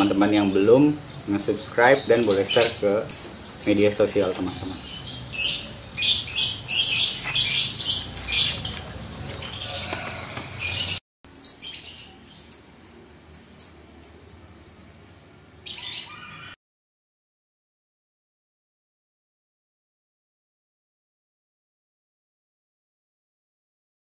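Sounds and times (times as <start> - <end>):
birds chirping: 0.0 - 14.4, 15.6 - 16.6.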